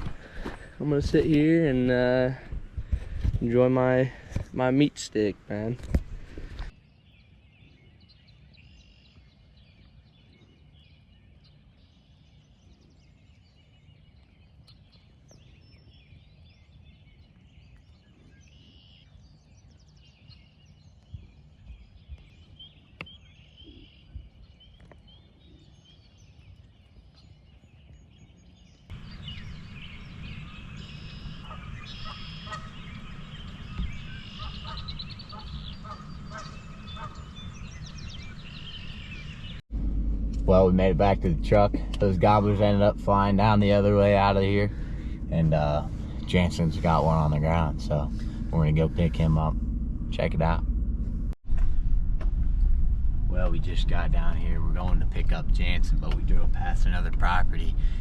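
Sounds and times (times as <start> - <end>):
birdsong: 0.0 - 58.0
rumbling background: 28.8 - 58.0
turkeys gobbling: 30.0 - 37.7.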